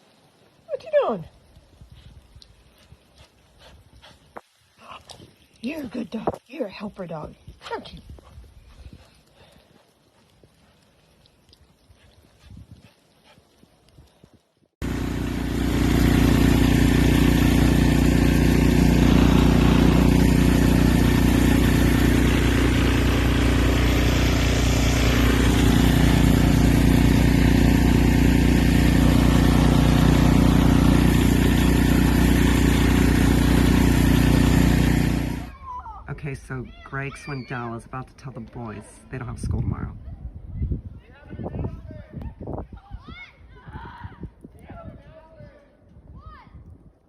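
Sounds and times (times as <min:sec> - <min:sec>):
engine running steadily: 0:14.8 - 0:35.5.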